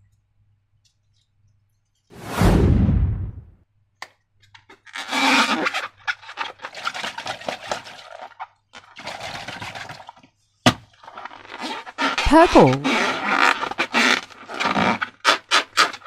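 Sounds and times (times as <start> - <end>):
slime and balloons squishing: 10.9 - 16.0.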